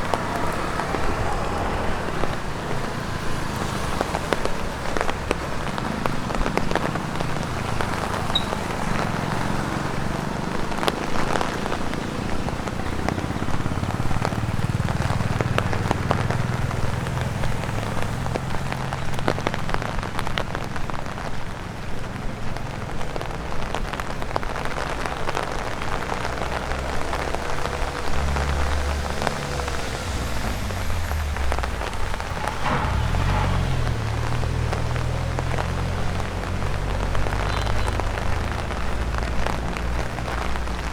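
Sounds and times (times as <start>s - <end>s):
rain hissing on a wet road: 0.0s - 40.9s
rain pattering on an umbrella: 0.0s - 40.9s
low rumble: 25.6s - 37.3s.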